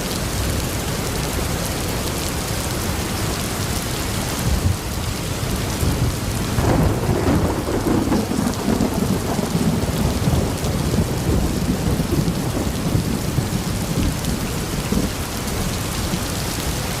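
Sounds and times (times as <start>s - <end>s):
heavy rain: 0.0s - 17.0s
rolling thunder: 5.7s - 15.7s.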